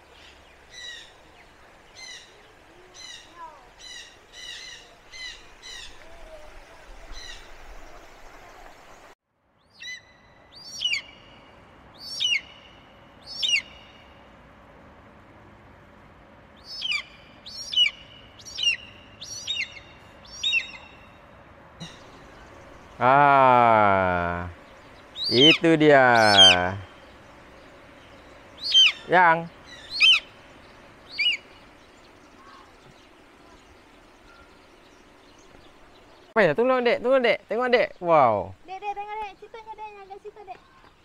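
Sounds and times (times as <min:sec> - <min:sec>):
birds calling: 0:00.0 - 0:14.6, 0:16.4 - 0:41.0.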